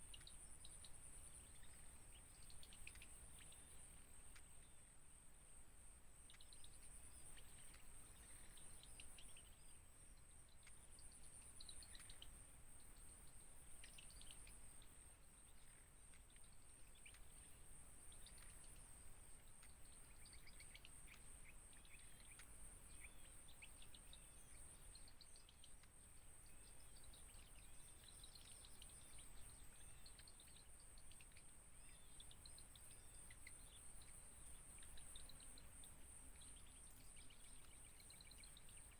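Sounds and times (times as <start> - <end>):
outdoor background hiss: 0.0 - 38.9.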